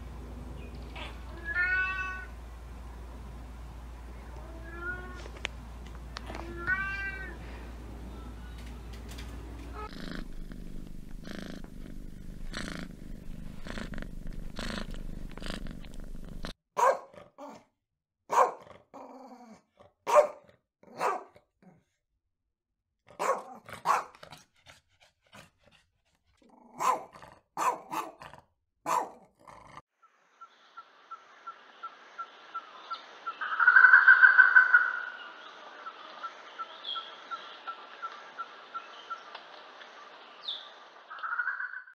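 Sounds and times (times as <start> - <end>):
cat purring: 8.6 - 16.6
dog barking: 16.8 - 17.6, 18.3 - 18.7, 20.1 - 21.4, 23.1 - 24.2, 26.7 - 29.3.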